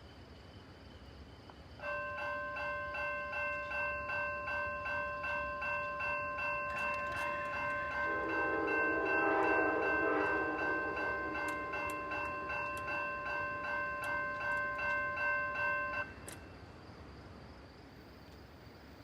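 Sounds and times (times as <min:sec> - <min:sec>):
railroad crossing bell ringing: 0:01.8 - 0:16.7.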